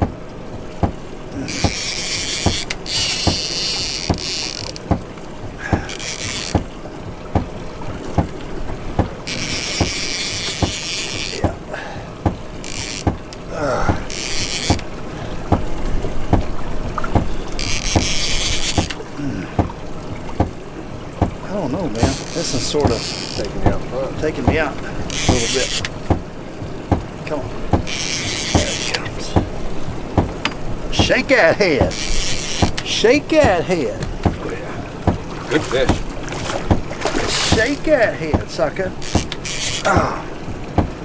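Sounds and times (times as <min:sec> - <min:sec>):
reel drag buzzing: 0:00.0 - 0:41.0
fishing reel clicking: 0:01.5 - 0:04.8, 0:05.9 - 0:06.6, 0:09.3 - 0:11.4, 0:12.6 - 0:13.1, 0:14.1 - 0:14.8, 0:17.6 - 0:19.0, 0:25.1 - 0:25.9, 0:27.9 - 0:29.0, 0:31.9 - 0:32.9, 0:39.0 - 0:39.9.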